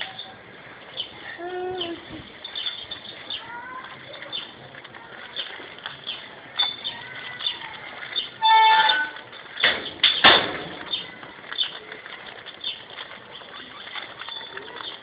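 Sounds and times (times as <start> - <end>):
birds chirping: 0.0 - 15.0
horn honk: 8.4 - 9.2.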